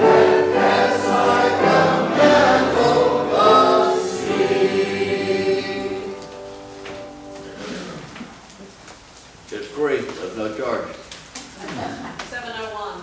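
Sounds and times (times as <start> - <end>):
congregation singing a hymn: 0.0 - 8.0.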